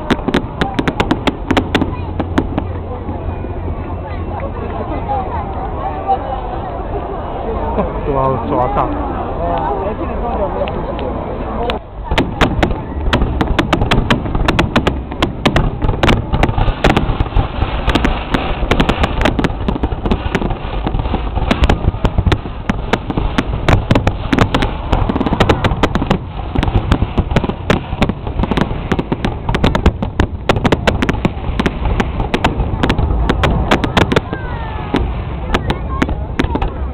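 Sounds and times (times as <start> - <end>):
fireworks crackling: 0.0 - 3.4, 12.0 - 36.9
deep rumbling fireworks boom: 0.0 - 3.8, 12.0 - 36.9.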